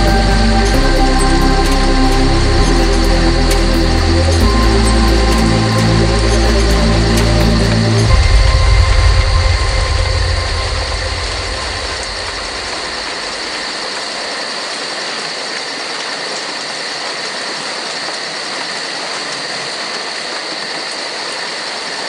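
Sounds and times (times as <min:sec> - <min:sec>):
low rumble: 0:00.0 - 0:13.8
steady rain falling: 0:00.0 - 0:22.0.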